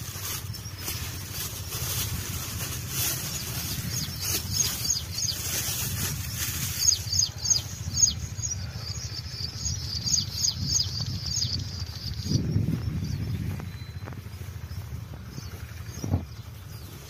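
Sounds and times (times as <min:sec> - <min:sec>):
plastic bag and paper rustling: 0:00.0 - 0:07.8
low steady rumble: 0:00.0 - 0:17.0
bird chirping: 0:00.2 - 0:17.0.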